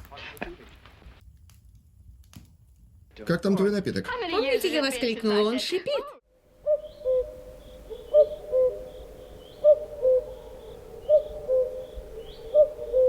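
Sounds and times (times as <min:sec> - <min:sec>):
faint high bird chirps: 0:06.6 - 0:13.0.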